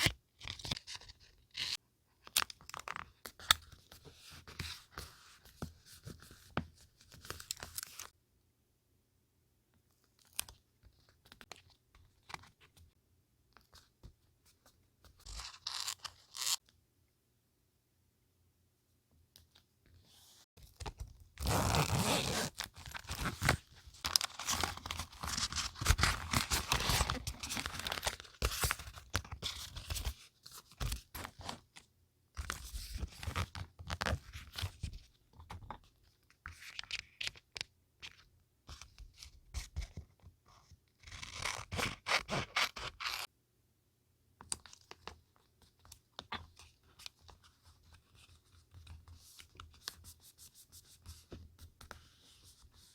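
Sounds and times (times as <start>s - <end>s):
paper crinkling and rustling: 22.6s - 31.6s.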